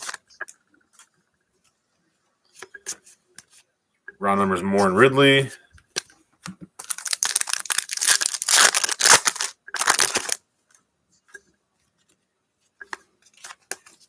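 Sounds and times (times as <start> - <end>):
foil wrapper tearing and crinkling: 6.8 - 10.4.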